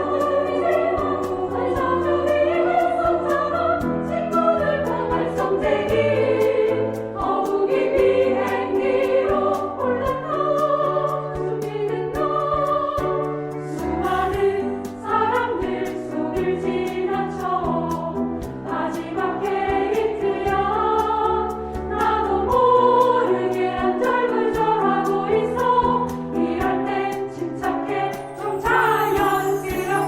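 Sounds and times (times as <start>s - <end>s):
instrumental accompaniment with beat: 0.0s - 30.0s
women's choir singing in harmony: 0.0s - 30.0s.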